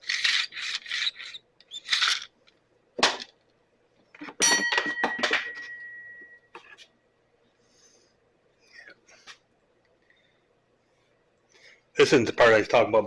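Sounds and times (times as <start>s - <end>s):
tools scraping and rustling: 0.0s - 2.4s
ringing metal clink: 4.4s - 6.5s.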